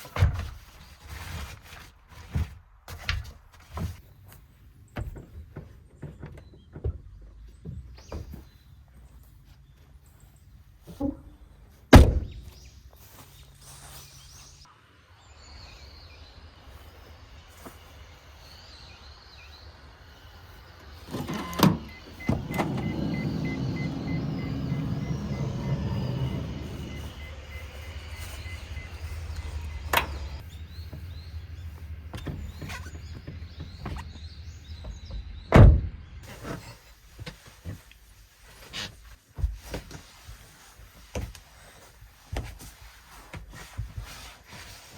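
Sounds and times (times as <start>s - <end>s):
sharp thunks inside car: 21.1s - 27.0s.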